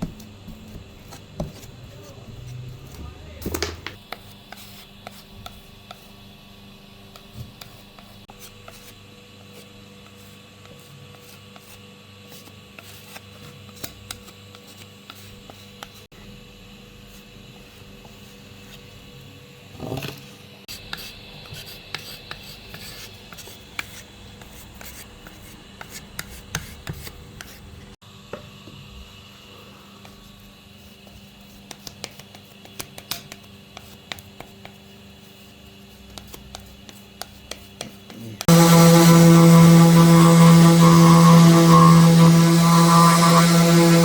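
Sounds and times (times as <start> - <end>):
rubbing and scraping on wood: 36.1 - 44.0.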